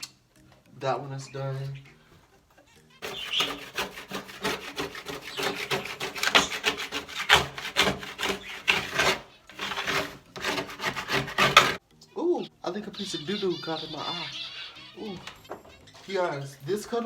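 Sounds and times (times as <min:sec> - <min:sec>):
plastic card scraping cage bottom: 0:03.0 - 0:11.8.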